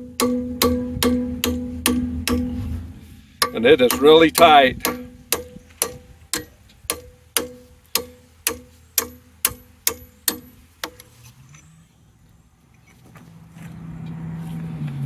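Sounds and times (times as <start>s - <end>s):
hammer striking metal: 0.0s - 11.1s.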